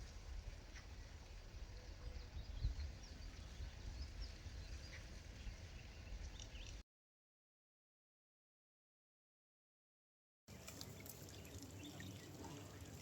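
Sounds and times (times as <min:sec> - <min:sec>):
wind rumble on microphone: 0:00.0 - 0:06.8.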